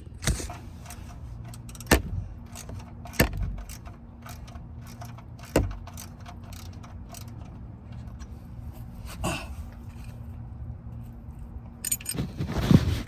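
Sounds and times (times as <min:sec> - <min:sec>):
ratchet wrench clicking: 0:00.5 - 0:08.3
sharp metallic knocks: 0:01.5 - 0:07.5.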